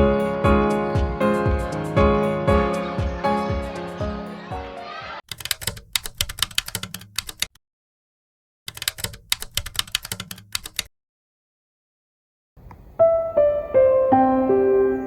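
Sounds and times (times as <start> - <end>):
keys being typed: 5.3 - 7.6, 8.7 - 10.9.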